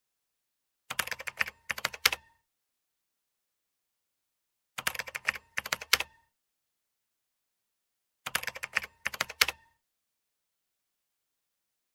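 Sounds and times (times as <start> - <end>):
computer keyboard typing clicks: 0.9 - 2.3, 4.8 - 6.2, 8.3 - 9.8.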